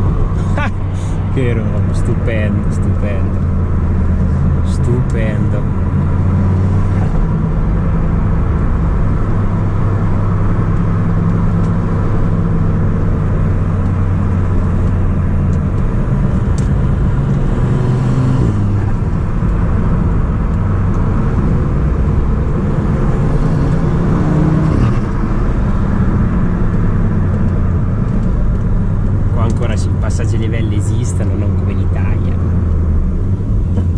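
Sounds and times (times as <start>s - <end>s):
car engine running: 0.0s - 33.9s.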